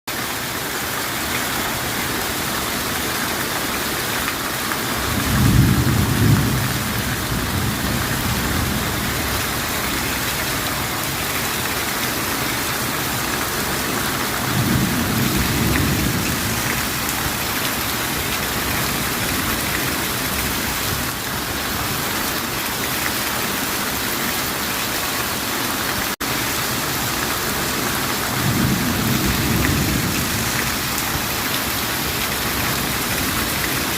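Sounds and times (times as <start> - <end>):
steady rain falling: 0.1 - 33.9
low thunder rumbling: 5.0 - 10.9, 14.4 - 21.0, 28.3 - 33.6.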